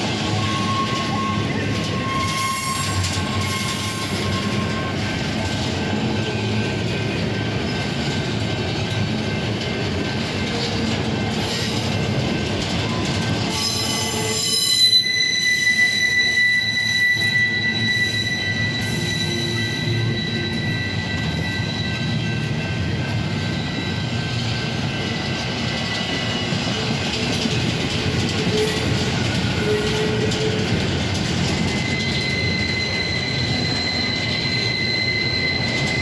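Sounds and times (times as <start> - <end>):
freight train cars rolling: 0.0 - 36.0
wheels squealing: 0.0 - 36.0.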